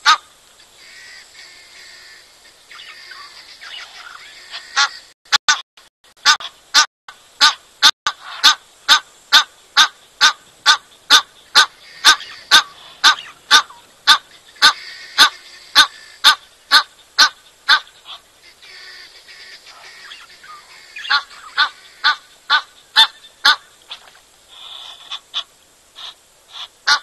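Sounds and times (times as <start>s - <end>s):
bird calling sharp notes: 8.2s - 25.2s.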